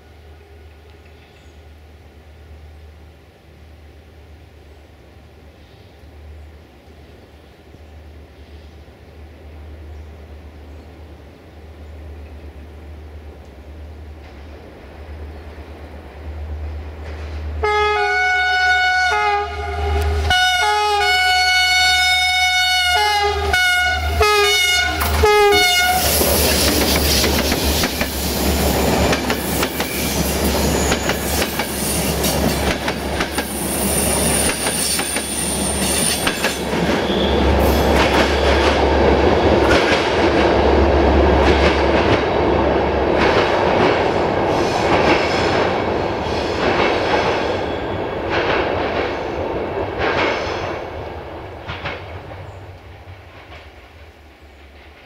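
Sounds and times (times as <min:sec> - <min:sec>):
train horn blasts: 0:17.6 - 0:26.3, 0:37.0 - 0:37.8
high wheel squeal: 0:33.4 - 0:37.9.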